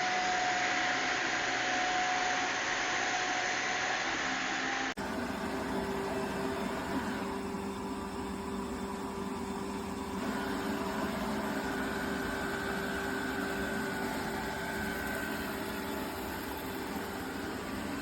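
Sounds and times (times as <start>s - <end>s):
faint high whine: 0.0s - 18.0s
robot vacuum motor hum: 10.1s - 18.0s.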